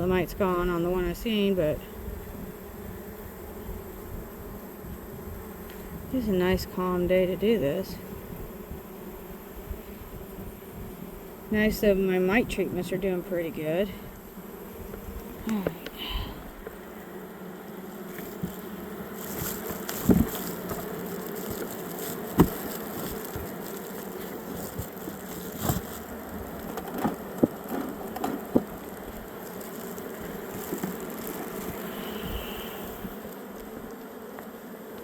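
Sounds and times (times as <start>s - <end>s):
honeybees buzzing: 0.0s - 35.0s.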